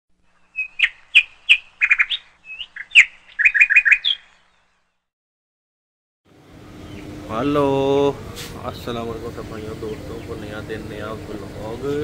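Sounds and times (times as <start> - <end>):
bird chirping: 0.2 - 5.1, 6.8 - 7.3.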